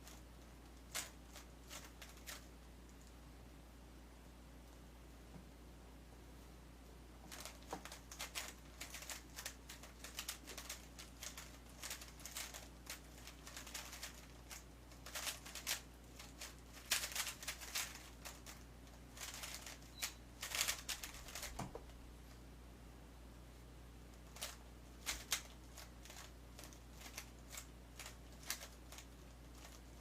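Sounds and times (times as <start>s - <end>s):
plastic puzzle cube clicking: 26.1s - 29.0s.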